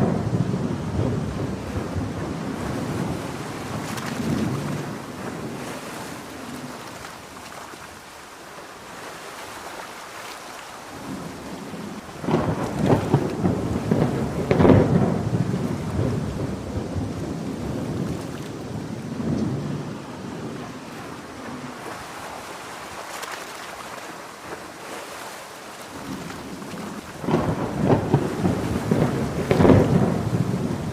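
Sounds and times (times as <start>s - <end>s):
thunder rolling: 0.0s - 5.8s, 11.0s - 22.0s, 26.0s - 30.9s
heavy rain falling: 0.0s - 30.9s.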